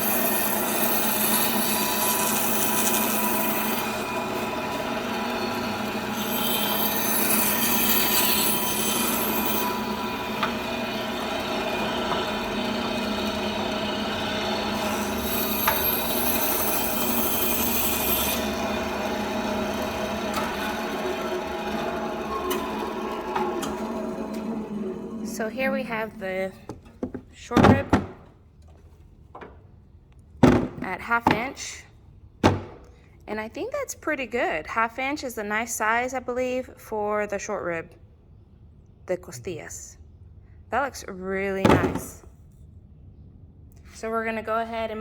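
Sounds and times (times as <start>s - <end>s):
electric band saw running: 0.0s - 26.4s
saw blade rasping through bone: 14.7s - 19.7s.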